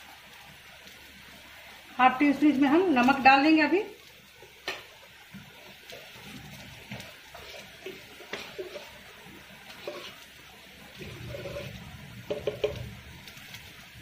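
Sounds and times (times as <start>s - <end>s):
vegetables sizzling in a pan: 0.0s - 14.0s
wooden spatula scraping a pan: 4.6s - 13.8s.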